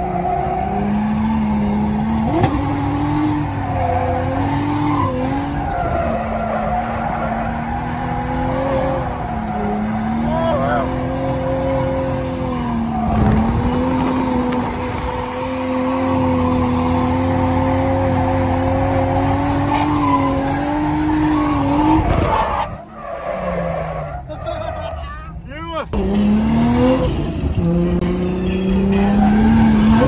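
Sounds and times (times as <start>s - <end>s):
car engine at high revs: 0.0s - 24.6s, 25.9s - 30.0s.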